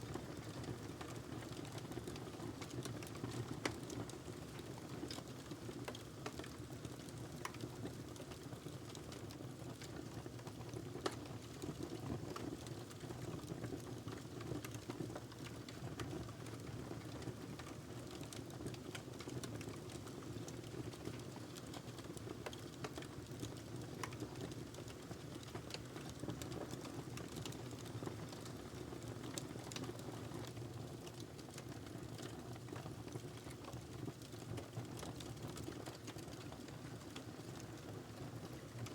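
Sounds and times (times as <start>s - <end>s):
wood fire crackling: 17.0s - 32.3s.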